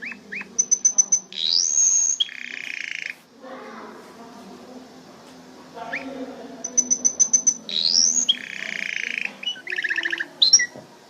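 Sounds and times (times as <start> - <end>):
canary singing: 0.0 - 3.3, 5.8 - 10.8.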